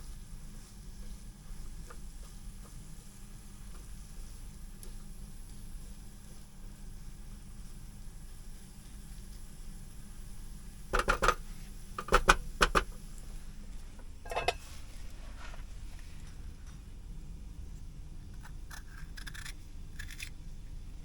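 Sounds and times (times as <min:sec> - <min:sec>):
steady low hum: 0:00.0 - 0:21.0
kitchenware clinking and knocking: 0:14.3 - 0:14.6.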